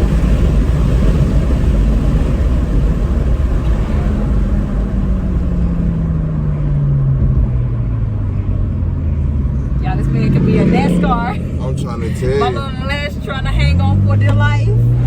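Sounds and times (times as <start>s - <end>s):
car engine running hard: 0.0s - 15.0s
road and wind noise: 0.0s - 15.0s.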